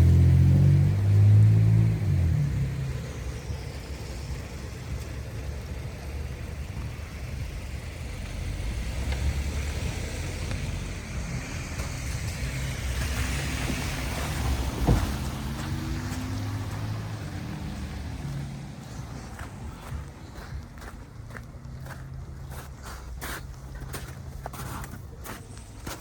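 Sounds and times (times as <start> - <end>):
passing cars rumble: 0.0 - 26.0.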